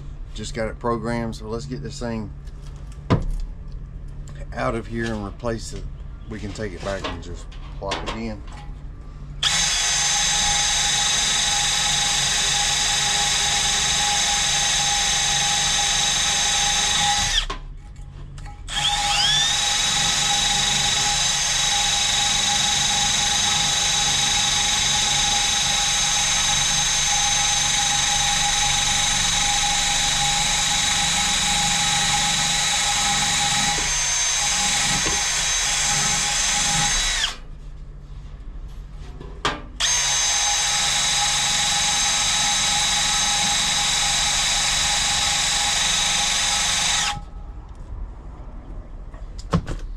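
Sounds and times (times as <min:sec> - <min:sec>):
small electric motor whining: 0:09.4 - 0:17.5, 0:18.7 - 0:37.4, 0:39.8 - 0:47.3.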